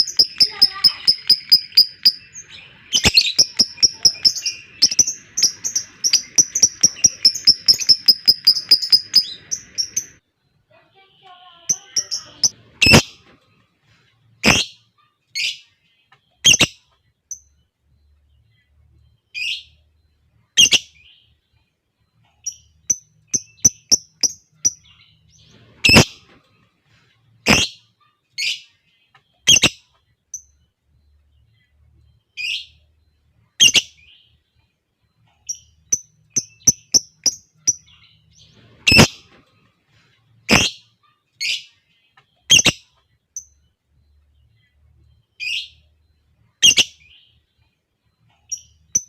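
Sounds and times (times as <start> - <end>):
lovebird shrill chirps: 0.0 - 10.2, 11.7 - 13.2, 14.4 - 14.7, 33.6 - 34.0, 40.5 - 40.8, 46.6 - 47.0
quick ticking chirps: 0.0 - 10.2, 22.4 - 24.9, 35.4 - 38.0.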